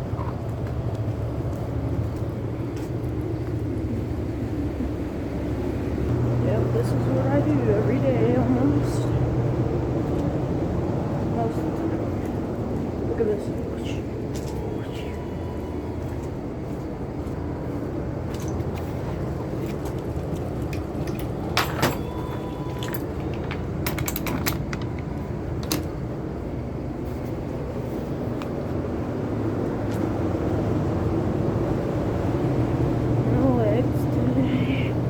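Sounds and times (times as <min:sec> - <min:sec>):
vehicle engine droning: 0:00.0 - 0:35.0
sharp clicks and rattles: 0:22.8 - 0:26.1.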